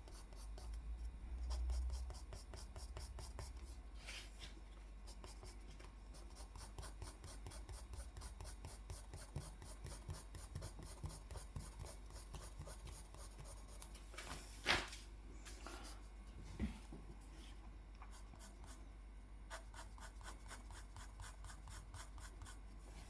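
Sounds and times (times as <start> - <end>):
pencil scratching on paper: 0.0 - 3.7, 5.1 - 13.9, 18.1 - 18.8, 19.5 - 22.8.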